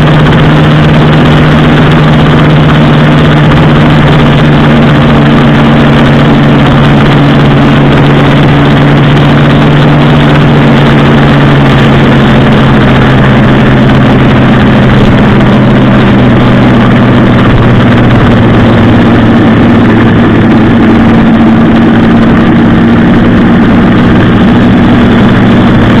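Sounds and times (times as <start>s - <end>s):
loud motorcycle engine running: 0.0s - 26.0s.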